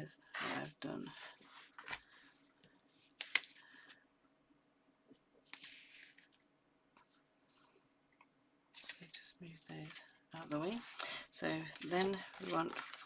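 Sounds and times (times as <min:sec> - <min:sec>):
faint steady hum: 0:00.0 - 0:13.0
paper rustling: 0:01.0 - 0:03.6, 0:05.5 - 0:06.4, 0:08.8 - 0:13.0.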